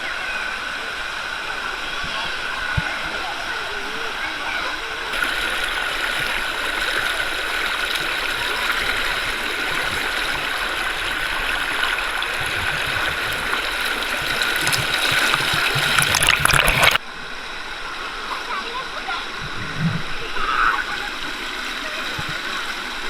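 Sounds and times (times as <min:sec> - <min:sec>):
river rushing over rocks: 0:05.2 - 0:17.0.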